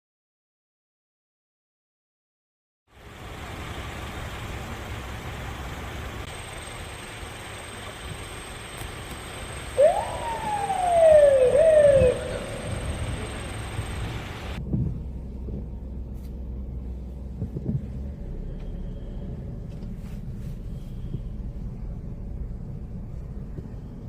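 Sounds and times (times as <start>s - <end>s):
loud wailing siren tone: 9.3s - 14.6s
strong gusty wind: 9.3s - 14.8s.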